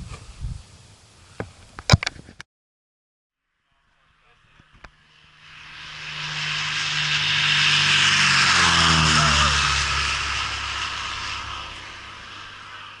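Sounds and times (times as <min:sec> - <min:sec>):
propeller plane flying past: 0:03.4 - 0:13.0.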